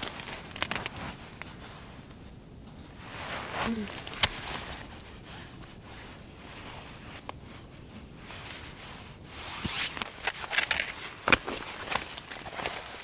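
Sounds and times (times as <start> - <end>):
fabric rustling: 0.0 - 13.0
zipper being pulled: 9.4 - 13.0.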